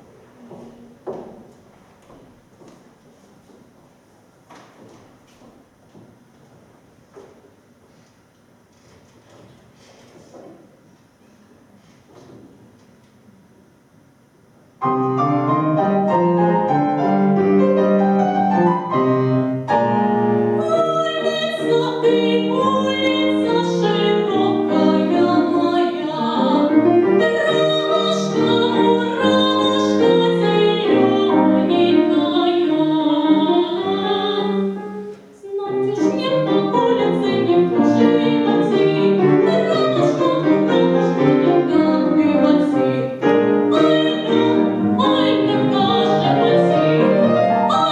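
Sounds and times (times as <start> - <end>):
piano playing full chords: 14.8 - 47.9.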